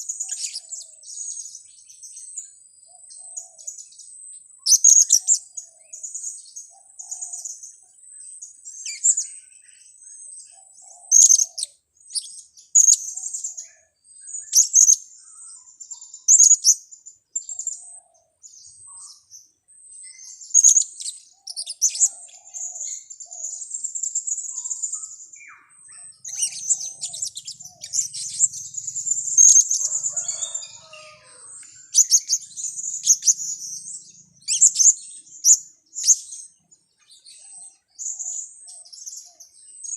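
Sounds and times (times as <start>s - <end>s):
parrots calling: 25.9s - 33.6s.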